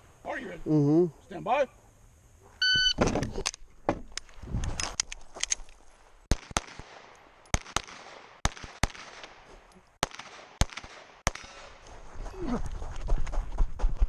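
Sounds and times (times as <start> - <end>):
pistol shots: 6.3 - 9.4, 10.0 - 11.8.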